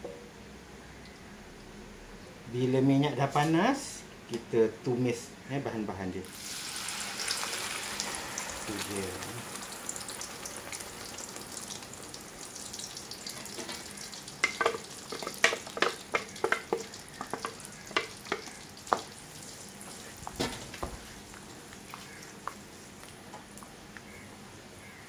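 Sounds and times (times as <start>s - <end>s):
spice paste sizzling in oil: 6.2s - 23.8s.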